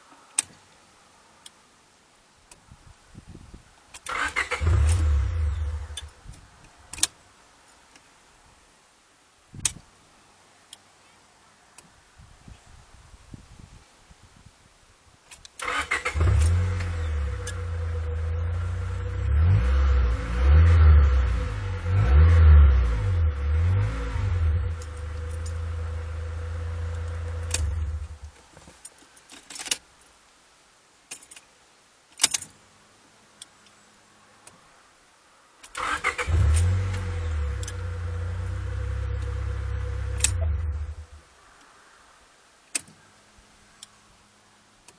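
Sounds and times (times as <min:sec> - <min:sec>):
car engine starting and revving: 0:04.0 - 0:06.1, 0:15.6 - 0:28.3, 0:35.7 - 0:41.2.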